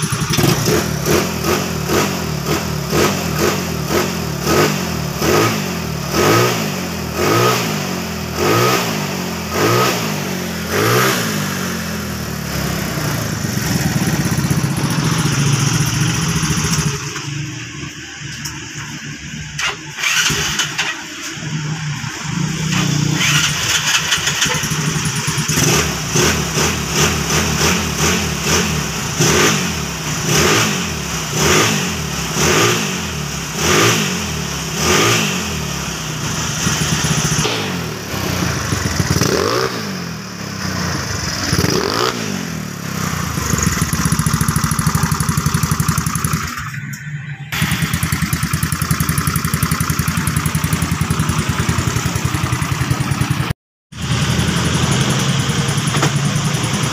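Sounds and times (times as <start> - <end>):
motorcycle engine idling: 0.0 - 5.2, 11.4 - 29.2, 35.6 - 46.9, 47.6 - 56.9
motorcycle engine revving: 0.0 - 56.9.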